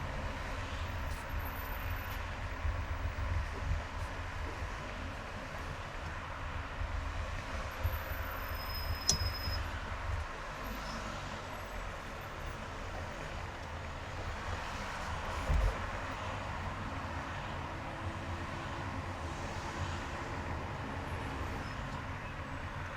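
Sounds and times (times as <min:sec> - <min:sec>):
car tyre and road noise: 0:00.0 - 0:22.9
sharp click with high tone: 0:09.0 - 0:09.6.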